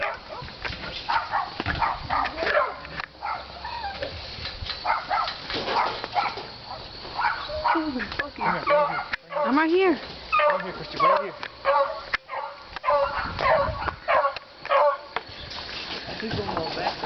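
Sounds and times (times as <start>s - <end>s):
dog barking: 0.0s - 0.5s, 1.1s - 3.5s, 4.8s - 15.1s.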